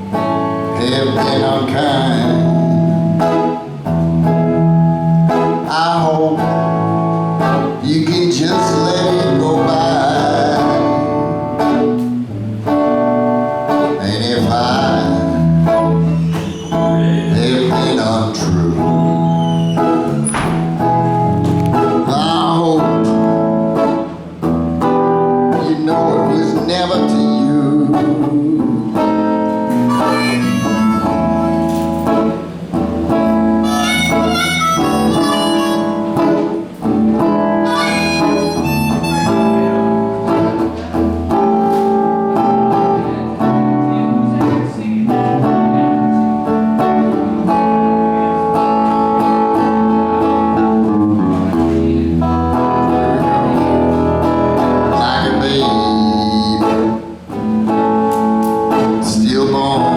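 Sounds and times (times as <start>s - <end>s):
guitar accompaniment: 0.0s - 59.9s
harmonica melody: 29.5s - 41.7s.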